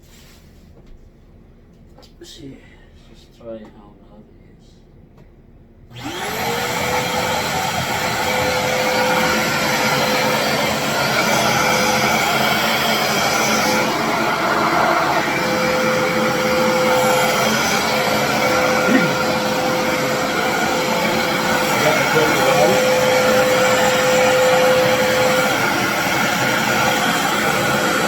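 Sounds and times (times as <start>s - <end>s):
vacuum cleaner motor whine: 5.9s - 28.0s.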